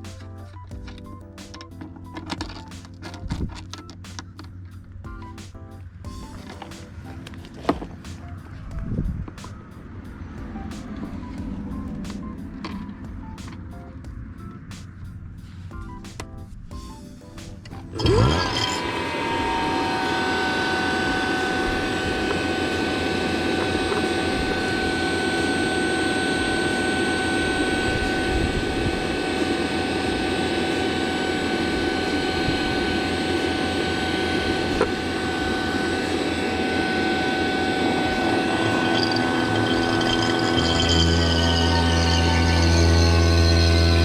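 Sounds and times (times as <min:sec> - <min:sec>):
motor machine spinning up and whining: 0:17.9 - 0:44.0.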